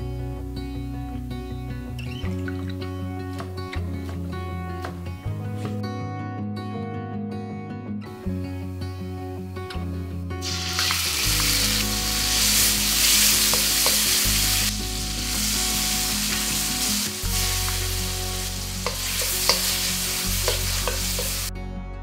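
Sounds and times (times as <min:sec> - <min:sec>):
soft background music: 0:00.0 - 0:22.0
food sizzling in a wok: 0:10.4 - 0:21.5
spatula clicking against wok: 0:13.4 - 0:14.2, 0:18.8 - 0:19.8, 0:20.4 - 0:21.4.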